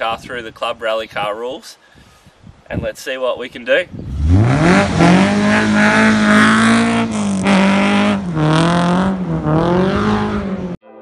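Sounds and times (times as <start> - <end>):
car engine revving: 4.1 - 10.8.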